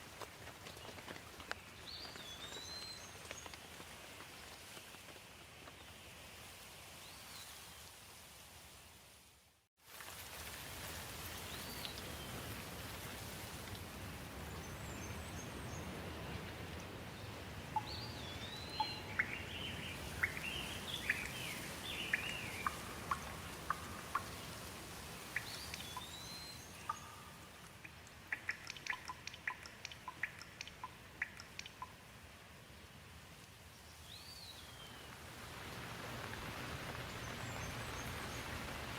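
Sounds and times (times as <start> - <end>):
steady rain: 0.0 - 38.9
water drips: 17.7 - 32.2.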